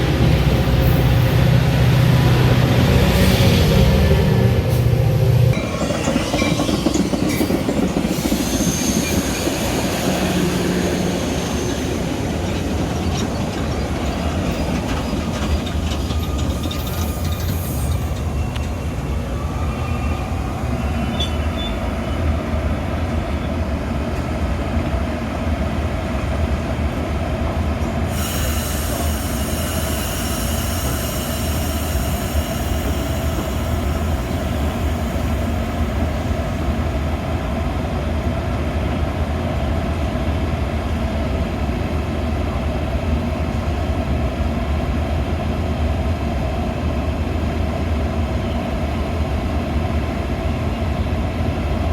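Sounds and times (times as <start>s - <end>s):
train wheels rumbling on rail: 0.0s - 51.9s
thin wheel squeals: 5.6s - 12.3s, 14.6s - 18.9s
hiss: 28.1s - 35.7s.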